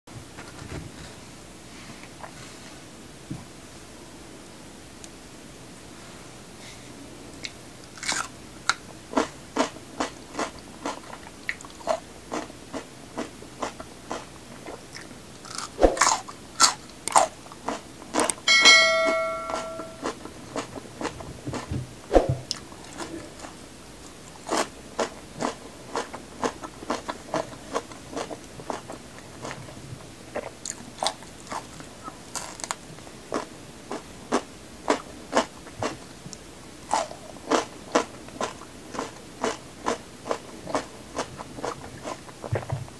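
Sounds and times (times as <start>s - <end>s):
crunching raw vegetables: 7.4s - 18.4s, 30.3s - 36.0s
short ringing clink: 18.5s - 20.0s.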